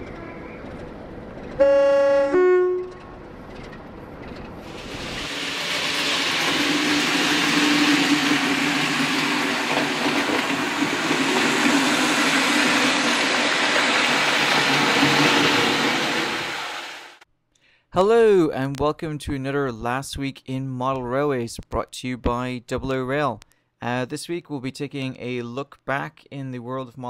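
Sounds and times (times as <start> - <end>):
passing train rumbling: 0.0 - 17.2
train horn: 1.6 - 3.0.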